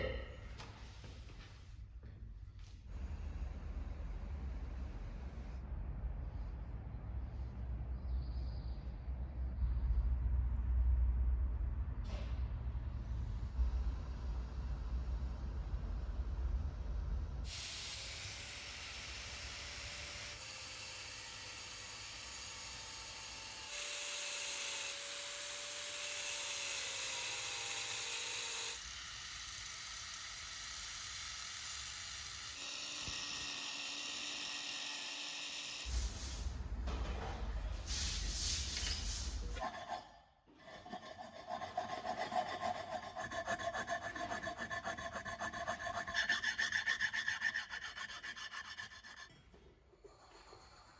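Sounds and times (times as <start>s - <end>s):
rasping saw strokes: 40.6s - 49.5s.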